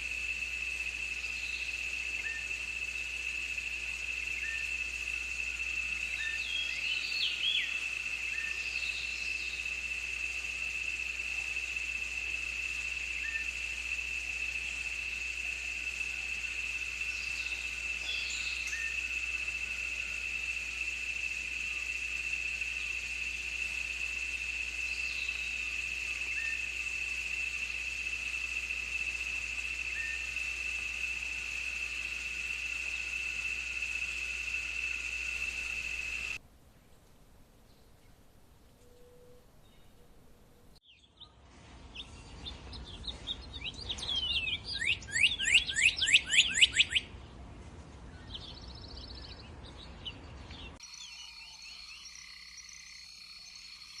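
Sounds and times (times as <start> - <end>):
insects trilling: 0.0 - 36.4, 43.9 - 47.0, 50.8 - 54.0.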